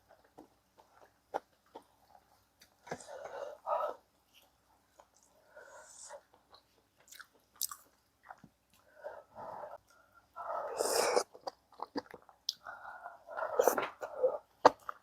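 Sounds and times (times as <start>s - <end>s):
person chewing with mouth clicks: 5.9s - 8.4s, 11.0s - 12.7s.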